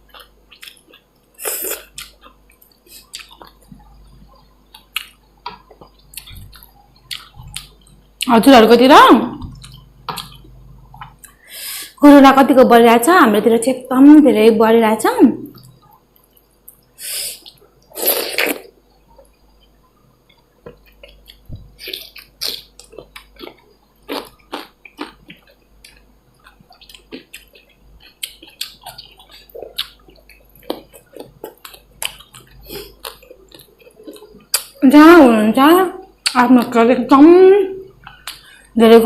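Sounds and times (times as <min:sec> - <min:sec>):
chewing and lip-smacking: 0:00.1 - 0:08.3, 0:09.5 - 0:11.4, 0:19.1 - 0:34.8, 0:37.9 - 0:38.5.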